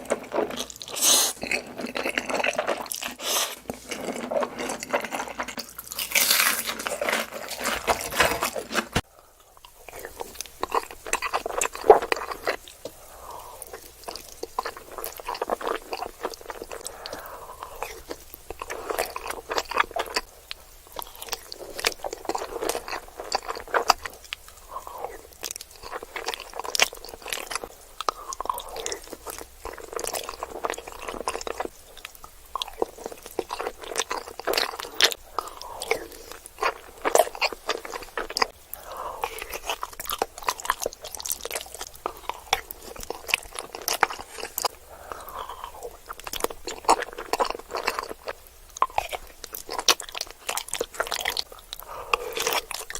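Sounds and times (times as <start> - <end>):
wet mouth sounds: 0.0 - 5.7
crunchy food chewing: 0.0 - 52.9.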